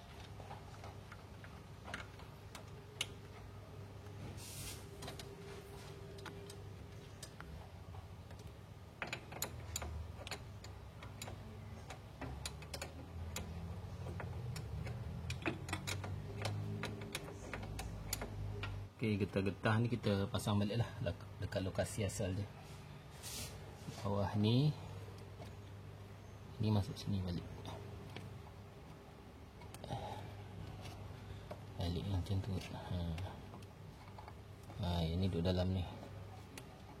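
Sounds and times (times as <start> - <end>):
low steady hum: 0.0 - 37.0
clicks and taps of metal parts: 8.2 - 18.9.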